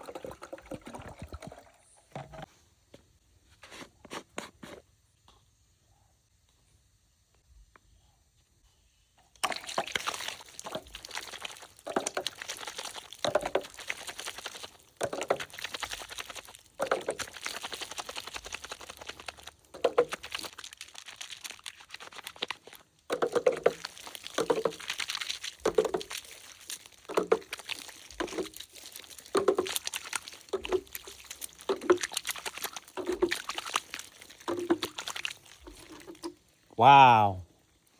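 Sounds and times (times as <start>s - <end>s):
water pouring and splashing: 0.0s - 2.5s, 9.3s - 36.7s.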